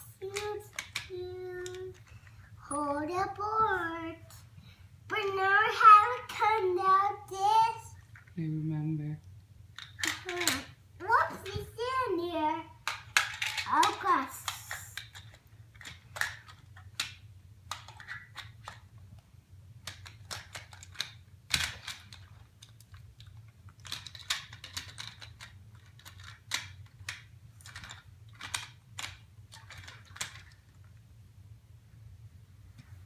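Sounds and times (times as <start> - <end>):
toy pieces knocking: 0.2 - 2.2, 9.7 - 12.0, 12.8 - 18.9, 19.8 - 30.8
toy train pieces clicking: 0.2 - 2.3, 9.8 - 10.7, 12.8 - 18.9, 19.8 - 30.7.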